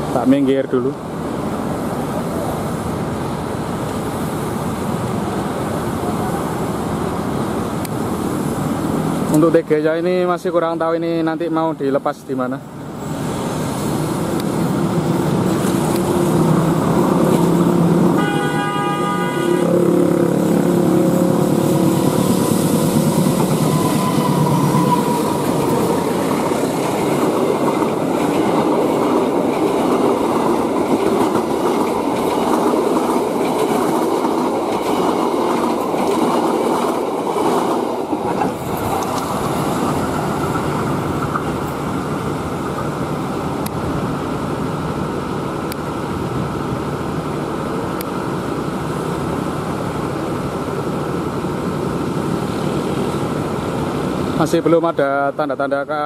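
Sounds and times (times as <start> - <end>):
train coaches rumbling: 0.0 - 56.0
train horn blast: 17.9 - 25.5
train wheels clacking on rail joints: 21.3 - 41.7.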